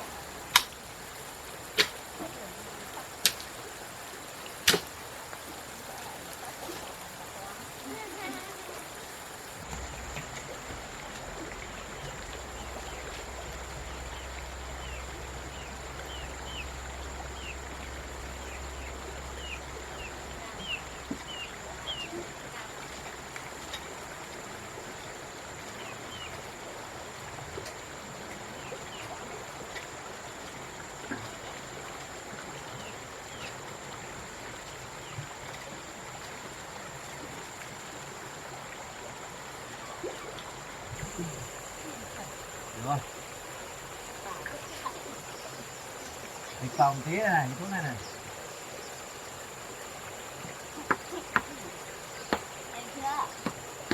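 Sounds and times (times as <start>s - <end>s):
steady hiss: 0.0s - 53.9s
faint clicks: 3.2s - 3.5s
low hum: 9.6s - 21.0s.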